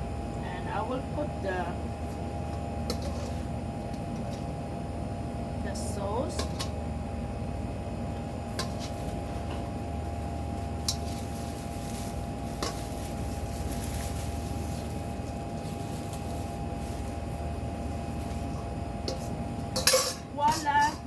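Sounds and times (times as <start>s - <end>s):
kitchen hum with faint tone: 0.0s - 21.0s.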